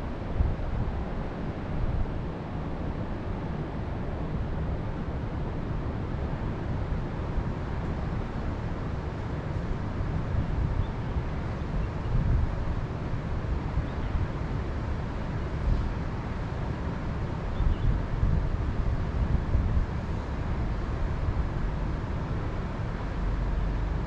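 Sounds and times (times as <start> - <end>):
wind gusting on microphone: 6.1 - 23.2
faint high bird chirps: 17.5 - 17.9.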